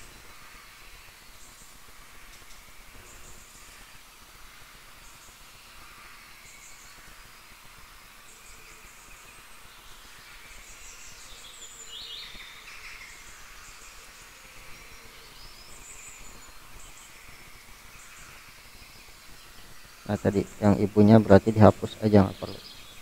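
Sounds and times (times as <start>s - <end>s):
steady low hiss: 0.0s - 23.0s
birds chirping: 8.2s - 23.0s.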